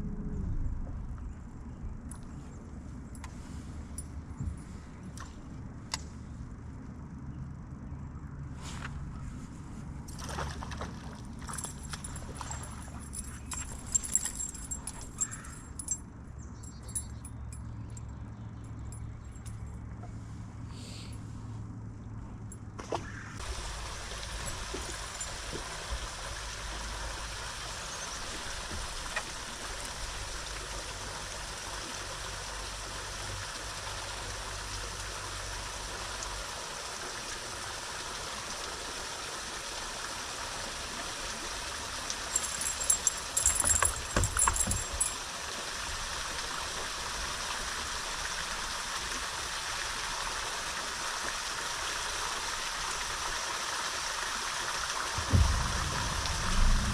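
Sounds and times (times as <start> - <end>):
wind: 0.0 - 56.9
rushing water: 10.1 - 15.9, 23.0 - 56.9
sharp clattering with ringing: 11.5 - 19.8, 42.3 - 45.2
low hum: 55.2 - 56.9.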